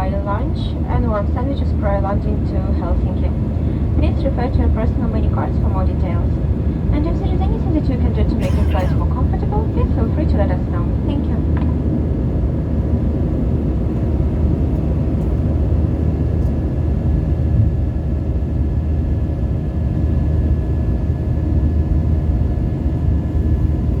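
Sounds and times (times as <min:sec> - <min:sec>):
faint steady hums: 0:00.0 - 0:11.8
airliner cabin rumble: 0:00.0 - 0:24.0.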